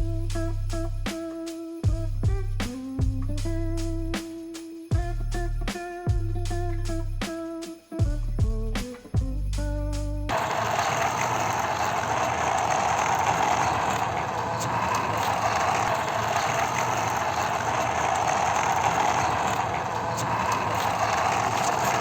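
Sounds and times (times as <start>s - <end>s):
toy mechanism whirring: 10.3s - 22.0s.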